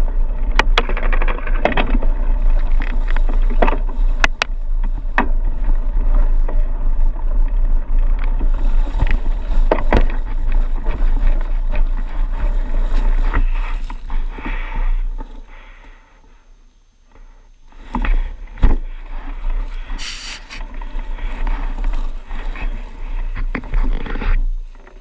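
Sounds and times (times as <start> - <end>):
bike rattling on rough trail: 0.0 - 16.0, 17.1 - 25.0
short hiss: 19.9 - 20.6.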